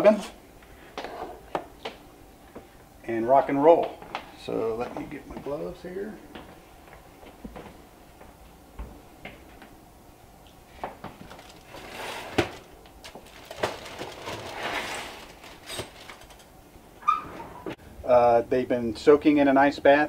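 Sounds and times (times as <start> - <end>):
rustling scraping: 10.7 - 16.5.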